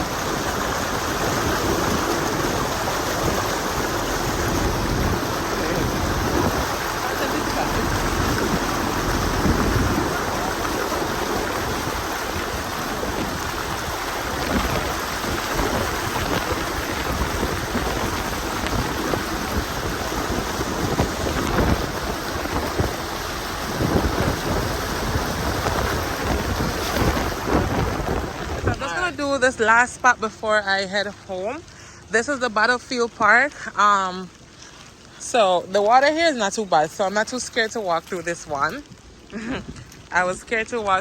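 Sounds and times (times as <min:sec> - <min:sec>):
low rumble: 0:00.0 - 0:30.1
heavy rain falling: 0:00.0 - 0:41.0.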